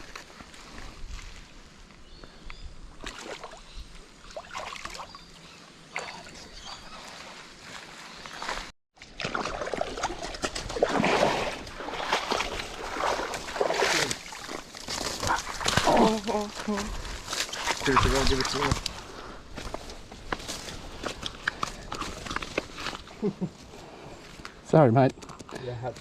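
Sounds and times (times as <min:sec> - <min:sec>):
water sloshing in a creek: 0:02.8 - 0:24.4.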